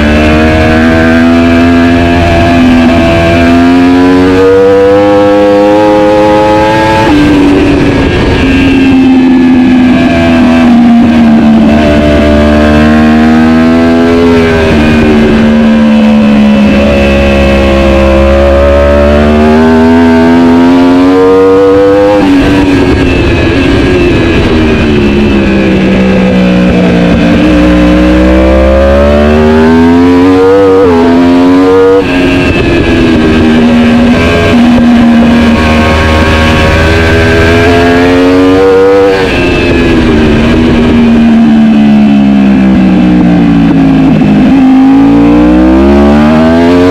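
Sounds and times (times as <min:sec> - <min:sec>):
motorcycle engine revving high: 0:00.0 - 0:46.9.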